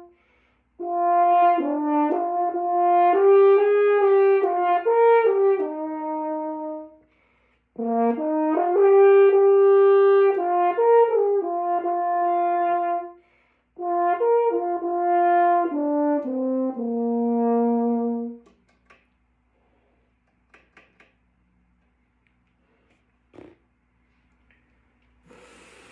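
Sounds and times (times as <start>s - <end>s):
player breathing: 0.1s - 0.8s, 7.0s - 7.7s, 13.2s - 13.8s, 25.2s - 25.9s
brass instrument warm-up notes: 0.8s - 7.1s, 7.8s - 18.5s.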